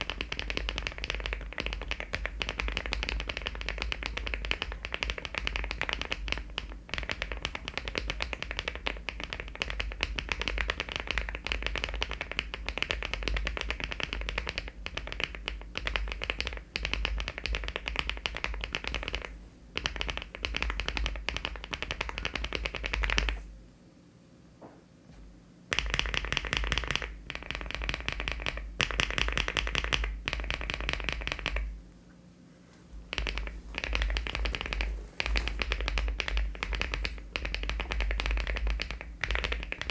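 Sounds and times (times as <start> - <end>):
mechanical keyboard typing: 0.0 - 23.4, 25.7 - 31.7, 33.1 - 39.9.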